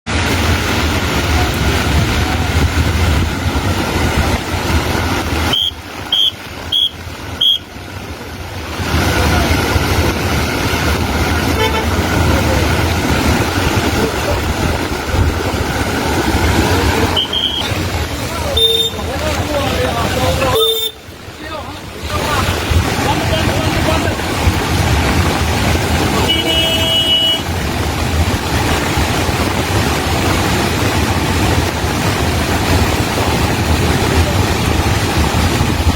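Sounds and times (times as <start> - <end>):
outdoor traffic noise: 0.0 - 35.9
short high beeps: 17.1 - 17.8.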